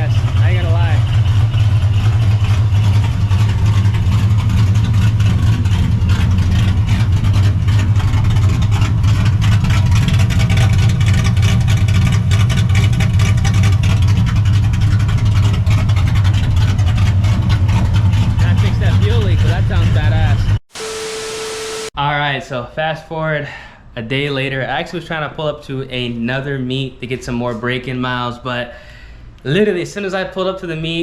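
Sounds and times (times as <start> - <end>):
loud car engine running: 0.0 - 21.9.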